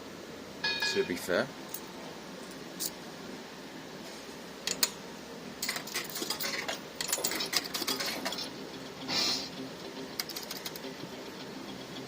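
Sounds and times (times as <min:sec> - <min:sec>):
arcade background noise: 0:00.0 - 0:12.0
fruit machine clicking and rattling: 0:05.6 - 0:08.6, 0:10.0 - 0:11.2.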